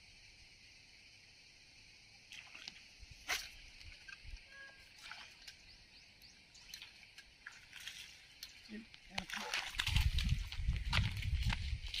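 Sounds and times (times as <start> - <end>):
birds chirping: 4.0 - 9.1
bird whistle: 4.5 - 4.8.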